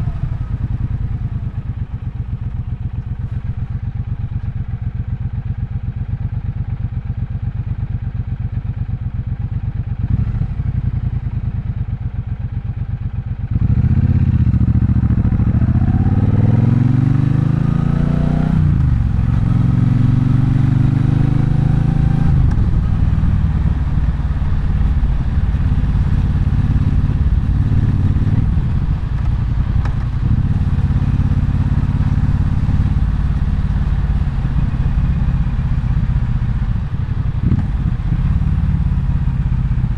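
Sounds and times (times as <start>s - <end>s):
motorcycle engine revving: 10.0s - 11.0s, 13.5s - 39.9s.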